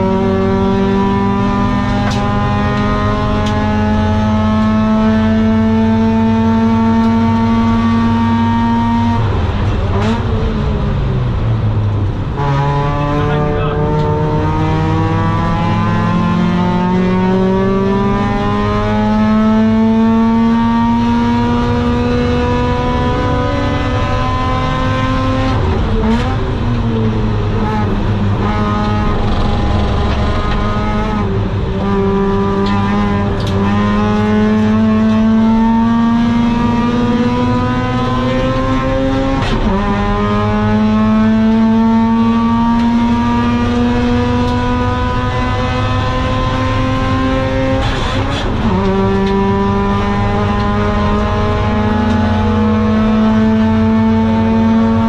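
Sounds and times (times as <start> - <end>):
rotary engine at full throttle: 0.0 - 55.0
gear upshifts: 23.3 - 55.0.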